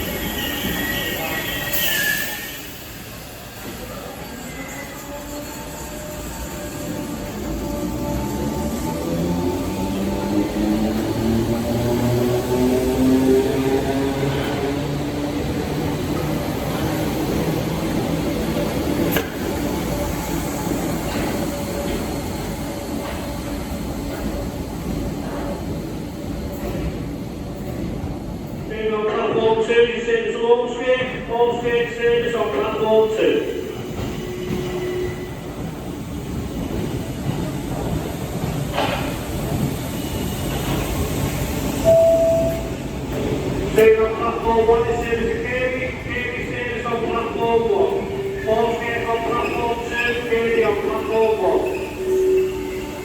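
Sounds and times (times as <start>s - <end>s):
train brake squeal: 0.0s - 6.8s, 51.6s - 53.0s
electric train rumble: 0.0s - 28.7s, 33.6s - 53.0s.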